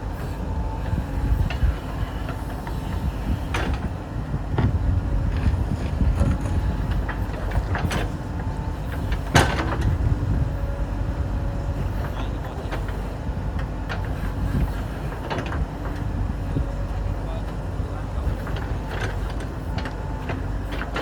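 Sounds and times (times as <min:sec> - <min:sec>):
diesel engine running: 0:00.0 - 0:21.0
machine knocks and clanks: 0:01.4 - 0:10.3, 0:11.7 - 0:16.8, 0:18.2 - 0:21.0.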